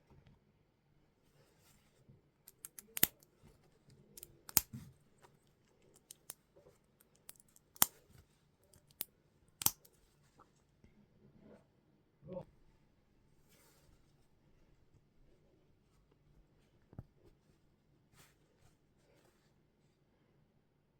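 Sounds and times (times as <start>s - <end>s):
plastic bricks snapping together: 4.2s - 4.8s, 8.8s - 9.9s.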